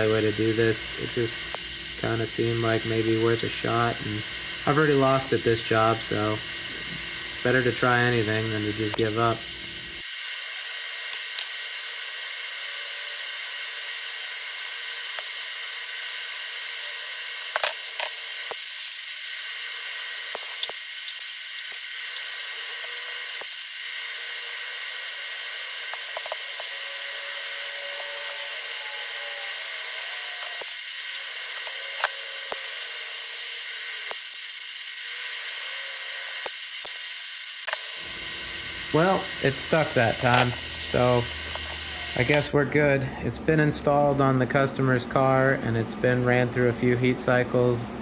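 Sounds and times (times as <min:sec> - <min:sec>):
welding arc hissing: 0:00.0 - 0:48.0.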